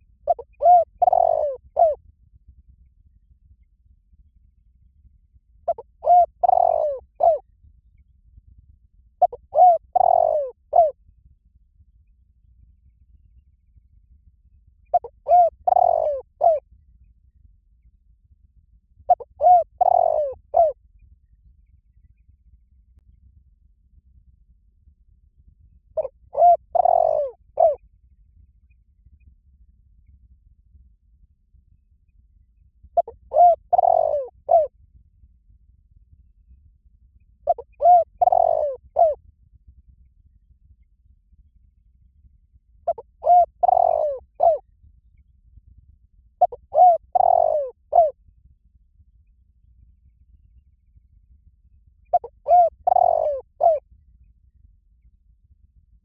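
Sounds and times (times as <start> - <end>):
dove cooing: 0.3 - 2.0, 5.7 - 7.4, 9.2 - 10.9, 14.9 - 16.6, 19.1 - 20.8, 26.0 - 27.8, 33.0 - 34.7, 37.5 - 39.2, 42.9 - 44.6, 46.4 - 48.1, 52.1 - 53.8.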